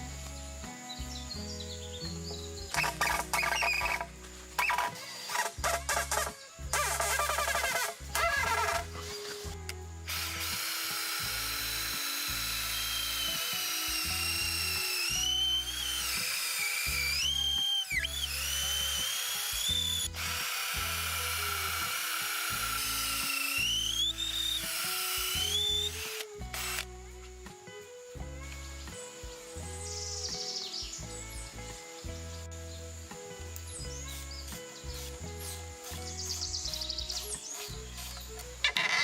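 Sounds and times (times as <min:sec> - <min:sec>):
power drill whining: 0:02.7 - 0:27.0, 0:34.1 - 0:39.0.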